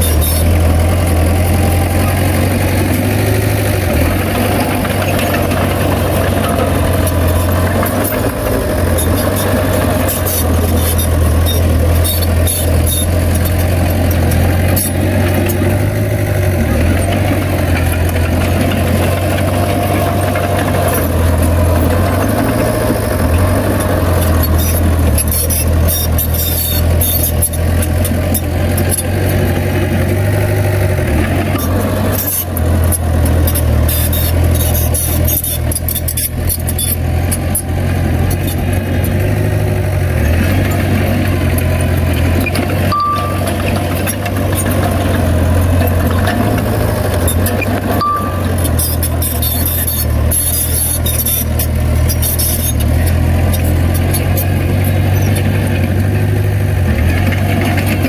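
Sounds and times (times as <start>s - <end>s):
diesel engine running: 0.0s - 58.0s
short high beeps: 42.8s - 44.0s, 48.0s - 51.4s.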